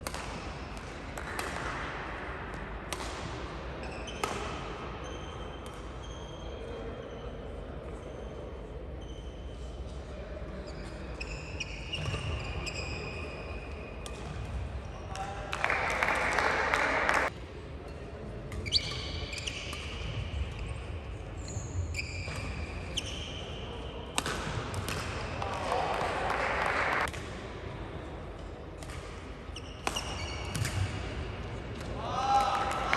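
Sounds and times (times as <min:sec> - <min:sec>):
rackets smacking shuttlecock: 0:00.0 - 0:01.8, 0:02.5 - 0:03.4, 0:24.1 - 0:25.7, 0:29.8 - 0:31.1
sports hall background noise: 0:00.0 - 0:32.9
shoes squealing on court floor: 0:05.0 - 0:07.3, 0:09.0 - 0:09.6, 0:10.7 - 0:13.7, 0:18.6 - 0:24.0, 0:29.6 - 0:31.0.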